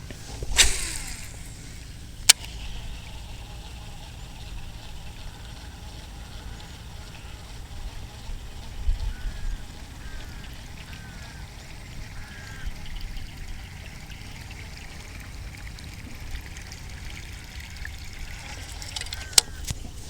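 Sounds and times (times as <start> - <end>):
water trickling: 0.0 - 20.0
wind buffeting microphone: 7.4 - 14.4.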